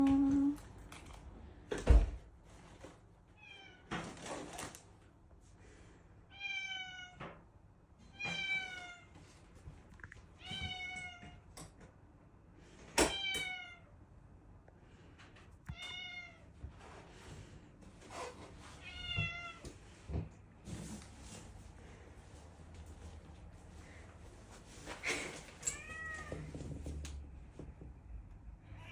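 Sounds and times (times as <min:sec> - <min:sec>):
cat meowing: 0:06.3 - 0:07.2, 0:25.7 - 0:26.5.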